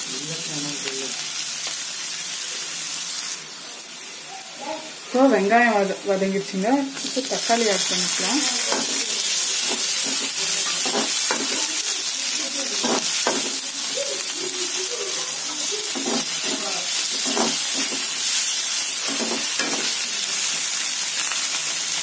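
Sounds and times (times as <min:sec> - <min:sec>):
onions sizzling in butter: 0:00.0 - 0:22.0
spatula scraping metal pan: 0:15.8 - 0:18.4.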